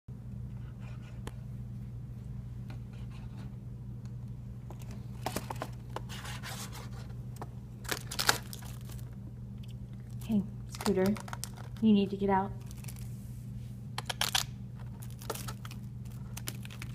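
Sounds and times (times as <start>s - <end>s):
steady low hum: 0.1s - 16.9s
plastic wrappers rustling: 7.8s - 9.2s, 10.0s - 11.8s, 12.6s - 13.2s, 14.0s - 16.9s.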